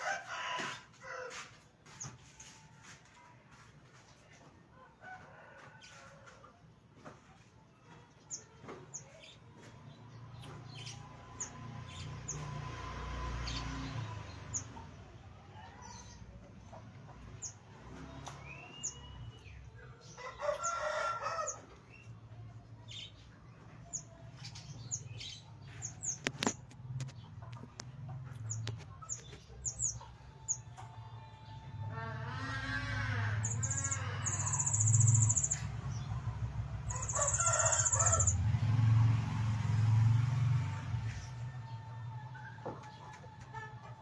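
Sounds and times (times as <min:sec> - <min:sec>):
birds chirping: 0:08.2 - 0:38.9.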